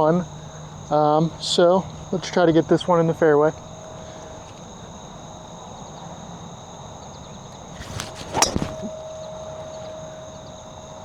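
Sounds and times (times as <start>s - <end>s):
crickets chirring: 0.0s - 11.0s
club striking ball crack: 7.6s - 9.0s
golf club swish: 7.8s - 8.9s.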